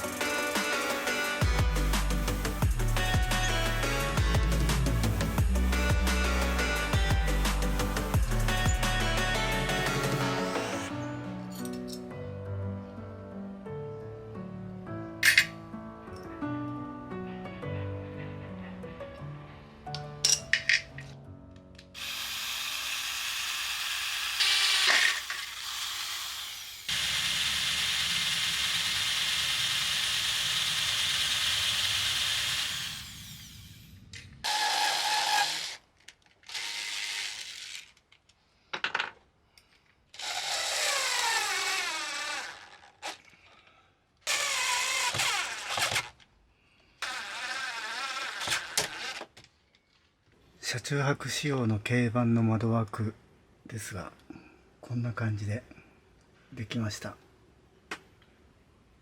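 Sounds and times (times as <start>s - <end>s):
power tool motor running: 22.0s - 33.9s, 34.5s - 35.8s, 36.5s - 37.9s, 40.2s - 43.2s, 44.3s - 46.1s, 47.0s - 49.3s.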